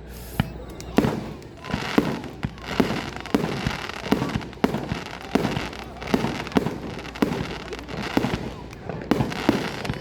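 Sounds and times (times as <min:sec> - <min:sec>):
fireworks bangs: 0:00.0 - 0:10.0
fireworks crackling: 0:00.0 - 0:10.0.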